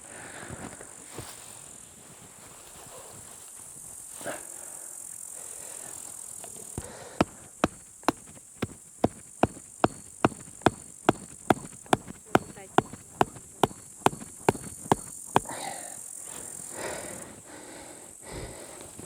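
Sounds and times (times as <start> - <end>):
sharp evenly spaced knocks: 7.2 - 15.5.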